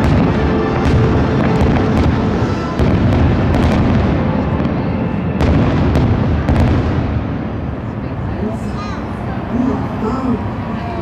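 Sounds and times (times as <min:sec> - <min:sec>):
sharp firework cracks: 0:00.0 - 0:04.8, 0:05.4 - 0:07.5
deep firework booms: 0:00.0 - 0:07.9.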